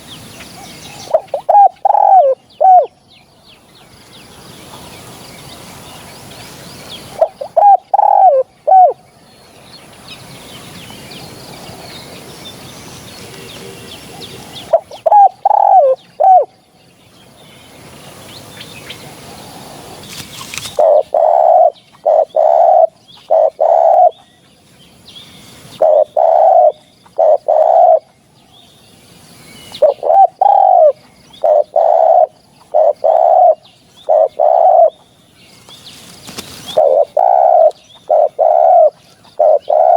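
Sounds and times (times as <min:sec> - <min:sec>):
dove cooing: 0:00.9 - 0:03.0, 0:07.1 - 0:09.0, 0:13.2 - 0:16.5, 0:20.7 - 0:24.2, 0:25.8 - 0:28.1, 0:29.8 - 0:35.0, 0:36.6 - 0:39.9.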